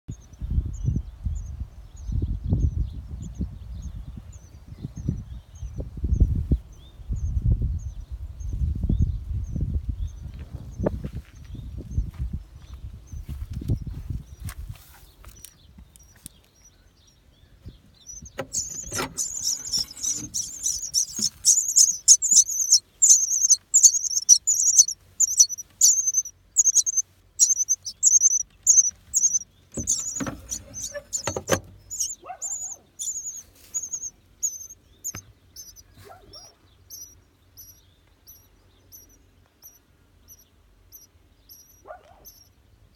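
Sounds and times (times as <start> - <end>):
nestlings chirping: 15.3 - 42.6
low rustling knocks: 28.8 - 32.2.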